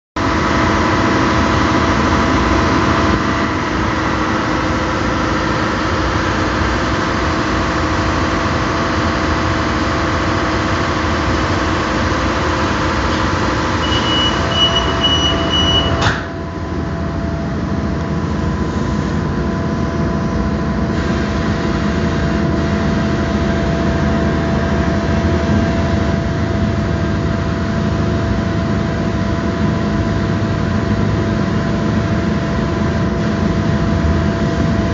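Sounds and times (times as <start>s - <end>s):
train equipment humming: 0.2s - 34.9s
train rumbling pulling away: 0.2s - 34.9s
sliding doors shutting: 13.0s - 16.4s
high warning beeps: 13.8s - 16.0s.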